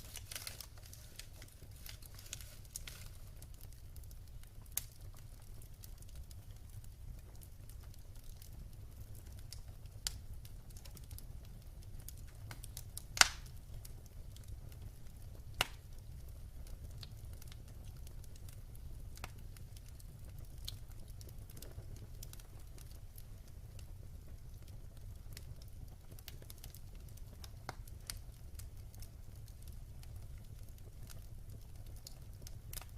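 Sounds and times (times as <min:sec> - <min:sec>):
wood fire crackling: 0:00.0 - 0:32.9.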